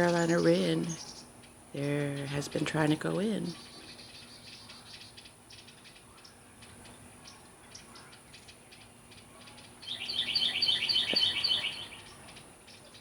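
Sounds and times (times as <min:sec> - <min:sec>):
faint bird chirps: 0:03.5 - 0:13.0.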